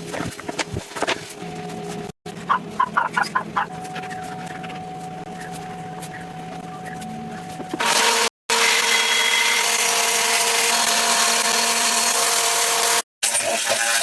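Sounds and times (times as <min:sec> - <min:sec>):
power tool whining on wood: 0:07.8 - 0:14.0.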